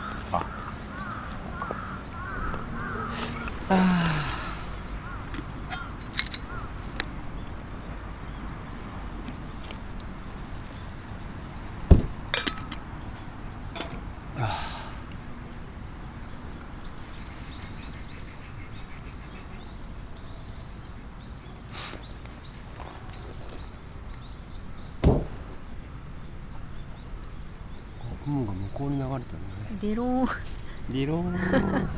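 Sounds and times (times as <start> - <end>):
sharp knocks: 11.9 - 12.8, 25.0 - 25.6.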